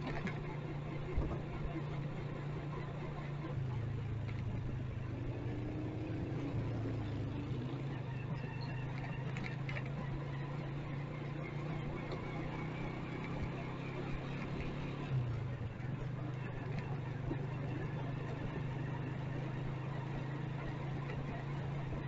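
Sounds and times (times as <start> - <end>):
motorcycle engine running: 0.0 - 22.0
traffic hum: 0.0 - 22.0.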